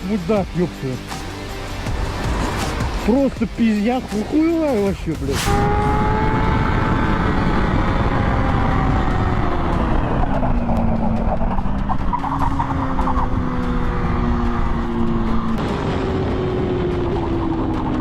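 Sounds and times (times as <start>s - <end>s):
road rumble: 0.0s - 18.0s
vehicle engine running: 0.0s - 18.0s
wind noise: 5.3s - 18.0s.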